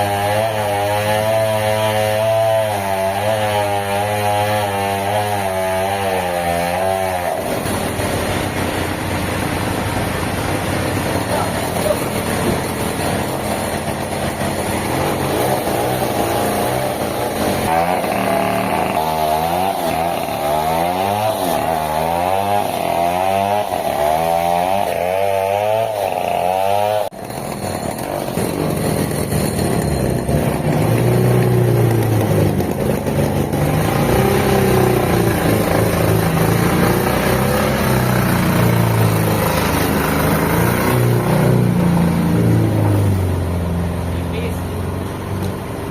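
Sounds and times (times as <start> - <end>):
engine-driven saw wobbling pitch: 0.0 - 43.4
low machine drone: 7.3 - 20.5.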